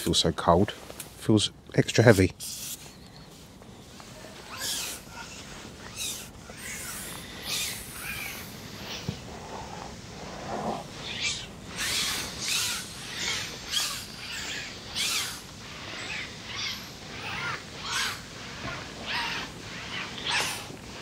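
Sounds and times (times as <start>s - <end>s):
birds calling: 2.1s - 21.0s.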